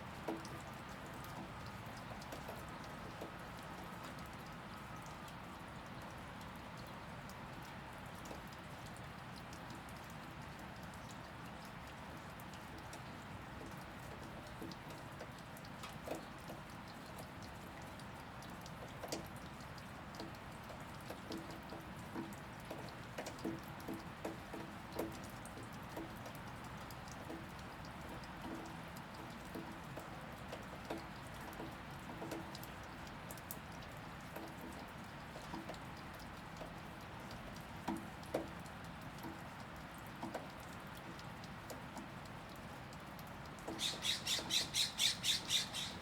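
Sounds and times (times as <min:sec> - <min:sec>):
steady rain falling: 0:00.0 - 0:46.0
drops ticking on a surface: 0:12.5 - 0:46.0.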